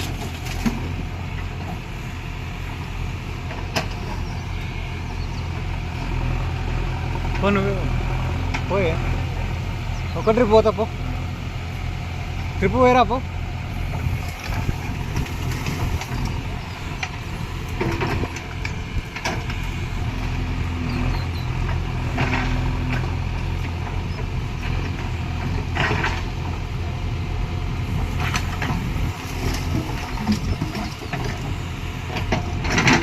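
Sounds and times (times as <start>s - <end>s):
diesel engine running: 0.0s - 33.0s
bucket clanks and creaks: 32.2s - 33.0s.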